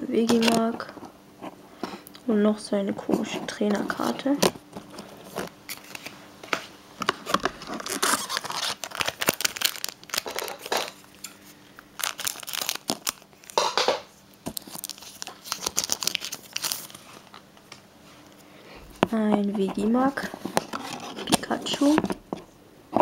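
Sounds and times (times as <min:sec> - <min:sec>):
foil wrapper tearing and crinkling: 0:07.2 - 0:11.1, 0:11.8 - 0:13.8, 0:14.4 - 0:17.4.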